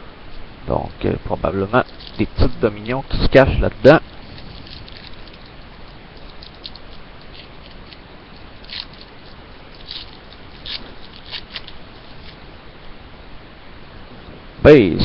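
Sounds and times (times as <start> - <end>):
wrapper crinkling: 1.7 - 3.0, 4.0 - 12.5
cards rustling: 4.1 - 12.4.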